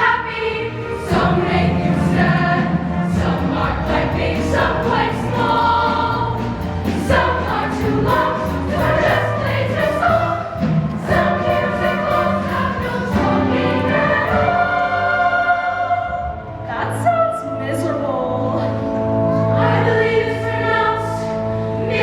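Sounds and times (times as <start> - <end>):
backing band: 0.0 - 17.6
choir singing in harmony: 0.0 - 22.0.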